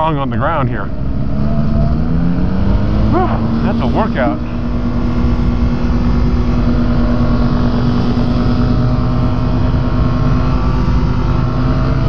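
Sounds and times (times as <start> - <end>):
light aircraft engine running: 0.0 - 12.0.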